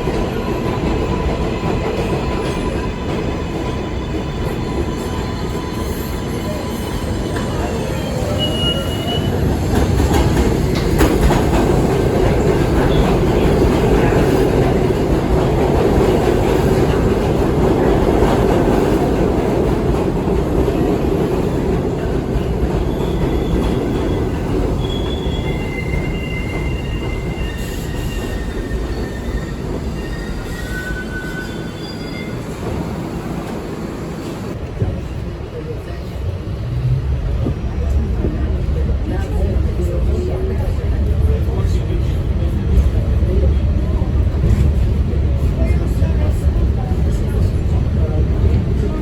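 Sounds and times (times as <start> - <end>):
subway train rumbling on rails: 0.0 - 49.0
high-pitched wheel squeals: 4.4 - 9.4, 24.8 - 32.8.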